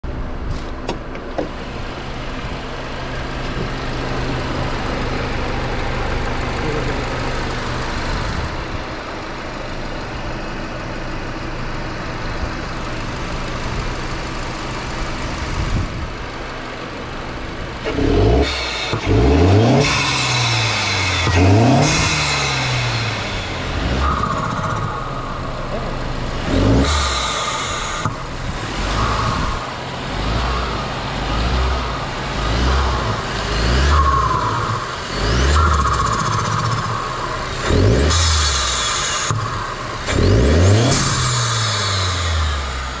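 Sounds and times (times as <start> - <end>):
car engine idling and revving: 0.0 - 43.0
engine intake hiss: 18.4 - 43.0.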